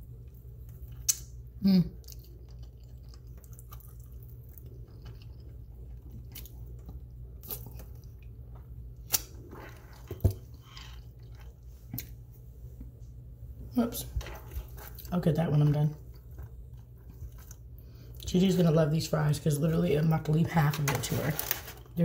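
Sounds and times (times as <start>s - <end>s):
person chewing: 0.0s - 12.2s, 16.0s - 18.3s.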